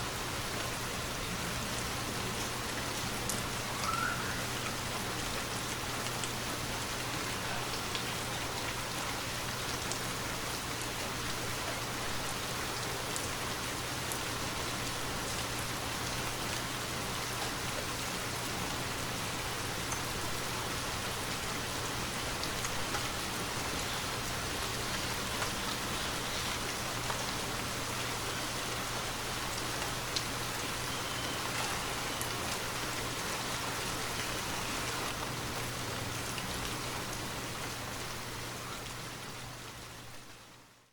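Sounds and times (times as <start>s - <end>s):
steady rainfall: 0.0s - 40.9s
raindrops ticking: 22.2s - 33.2s.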